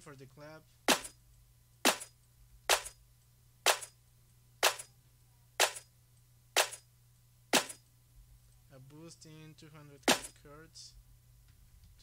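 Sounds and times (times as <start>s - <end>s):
faint low hum: 0.0s - 12.0s
drum machine clap: 1.9s - 2.1s, 2.7s - 3.0s, 3.7s - 3.9s, 4.6s - 4.9s, 5.6s - 5.8s, 6.6s - 6.8s.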